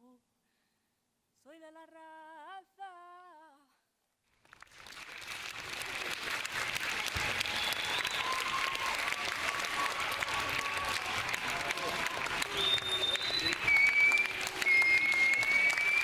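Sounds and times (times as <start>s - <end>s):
audience applause: 4.4s - 16.0s.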